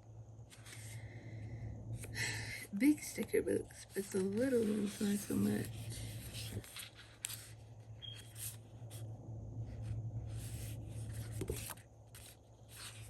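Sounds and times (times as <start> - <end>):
steady low hum: 0.0 - 13.0
paper rustling and rubbing: 0.5 - 1.0, 3.6 - 9.0, 9.7 - 13.0.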